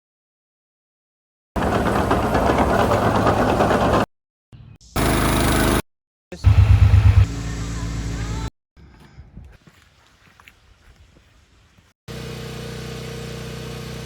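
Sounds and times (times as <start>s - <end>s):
machine engines running: 1.6s - 4.1s, 5.0s - 5.8s, 6.4s - 8.4s.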